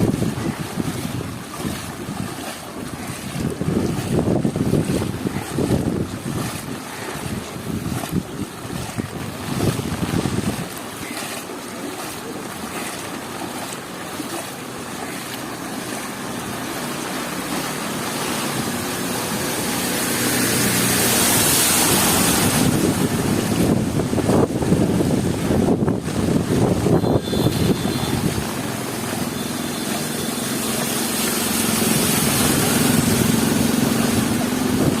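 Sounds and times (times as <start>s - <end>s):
wind buffeting the microphone: 0.0s - 11.2s, 20.6s - 29.3s, 31.6s - 35.0s.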